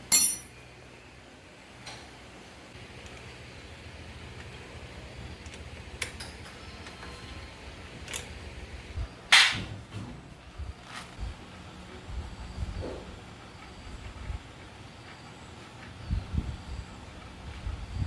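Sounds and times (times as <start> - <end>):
metal knocks and clinks: 0.0 - 0.5
low steady background noise: 0.0 - 18.0.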